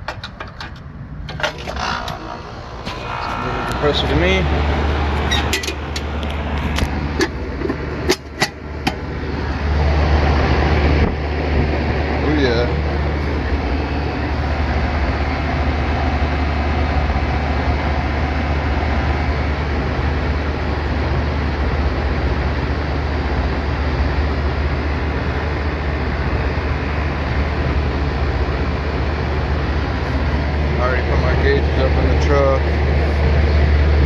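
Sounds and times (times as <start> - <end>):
air conditioner humming: 0.0 - 34.0.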